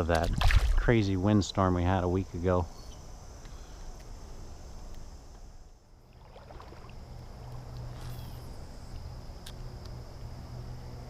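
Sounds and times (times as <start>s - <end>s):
crickets and insects droning: 0.0s - 11.0s.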